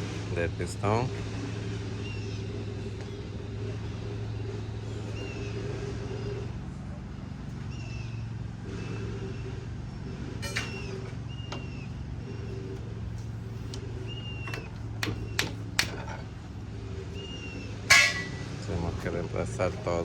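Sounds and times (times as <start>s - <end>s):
engine humming: 0.0s - 20.0s
sharp clicks and knocks: 13.7s - 16.3s.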